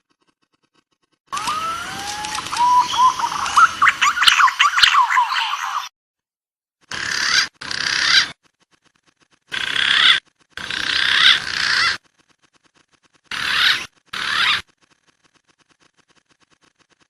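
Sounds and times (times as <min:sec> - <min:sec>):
pigeon calls: 0:01.3 - 0:05.9, 0:06.9 - 0:08.4, 0:09.5 - 0:12.1, 0:13.3 - 0:14.7.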